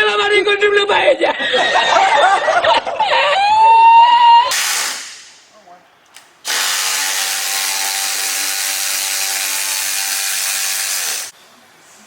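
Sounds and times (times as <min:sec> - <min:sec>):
power tool whining: 0:06.5 - 0:11.3.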